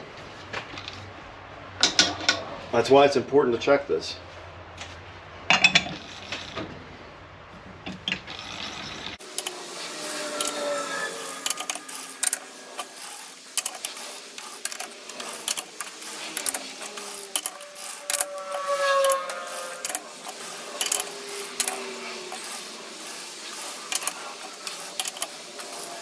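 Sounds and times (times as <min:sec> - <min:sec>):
metallic clicks and clinks: 0:09.2 - 0:26.0.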